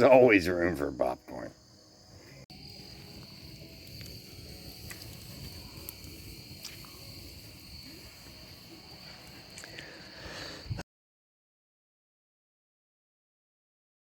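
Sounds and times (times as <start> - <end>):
crickets chirping: 0.0 - 10.8.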